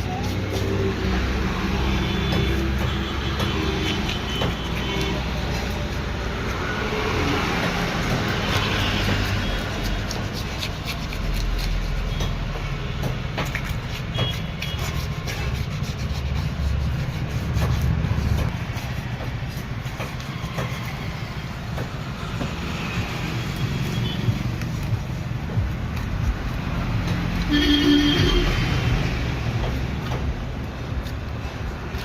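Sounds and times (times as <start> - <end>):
low traffic rumble: 0.0 - 32.0
knife knocking and scraping fish: 1.8 - 22.9.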